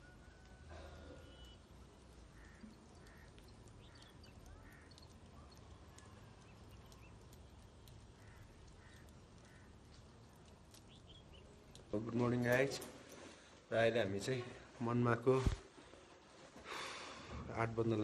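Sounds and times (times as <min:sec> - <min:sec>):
faint high chirps: 0:00.0 - 0:09.1
distant bird calls: 0:00.0 - 0:13.5.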